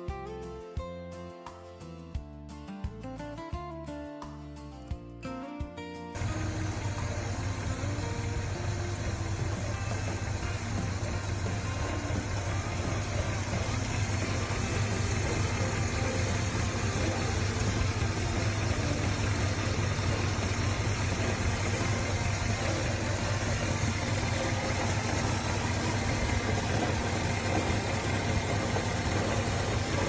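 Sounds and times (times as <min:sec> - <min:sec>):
car engine idling: 0:06.2 - 0:30.0.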